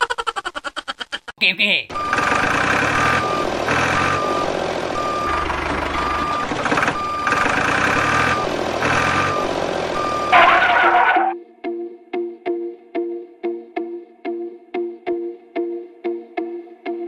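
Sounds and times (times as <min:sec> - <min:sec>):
engine running: 0:01.9 - 0:11.4
reversing alarm beeping: 0:01.9 - 0:11.4.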